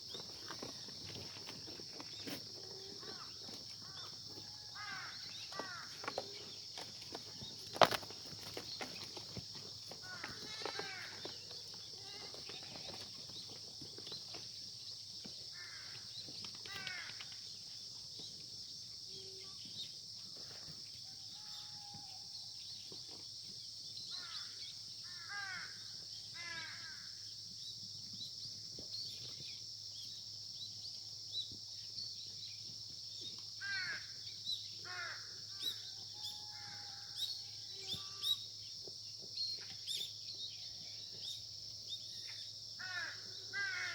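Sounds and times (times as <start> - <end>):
high-pitched insect chorus: 0.0 - 43.9
crows cawing: 2.9 - 6.5, 10.0 - 11.5, 15.5 - 17.4, 24.1 - 27.2, 33.6 - 34.2, 34.8 - 38.4, 42.8 - 43.9.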